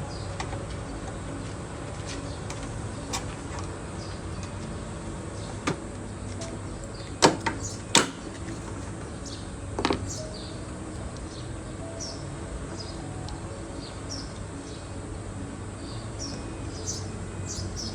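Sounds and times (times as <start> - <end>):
birds chirping faintly: 0.0 - 17.9.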